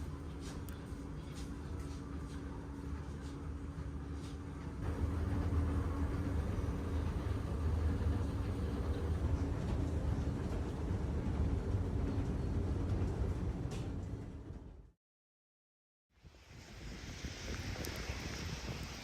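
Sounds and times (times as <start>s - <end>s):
train rumbling: 0.0s - 14.9s.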